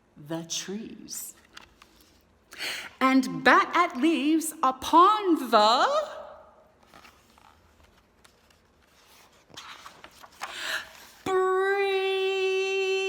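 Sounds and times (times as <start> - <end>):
breaths: 2.5 - 3.0, 10.4 - 11.2.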